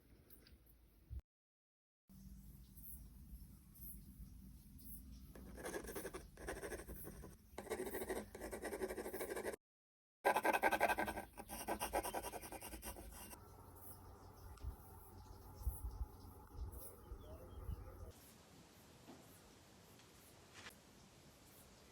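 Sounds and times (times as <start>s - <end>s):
pencil scratching on paper: 5.4s - 9.6s, 10.3s - 13.4s.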